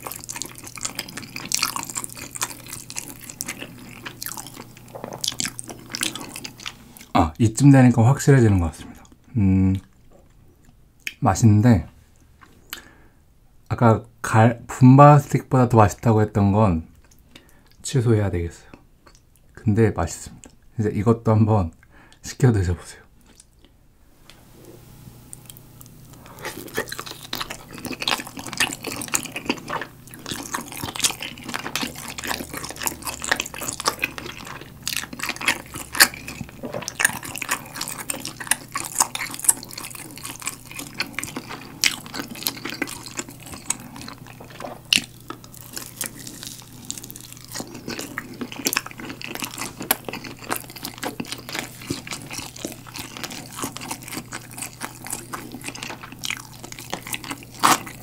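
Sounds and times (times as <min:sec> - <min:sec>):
wet sticky chewing: 0:00.0 - 0:07.3, 0:25.3 - 0:58.0.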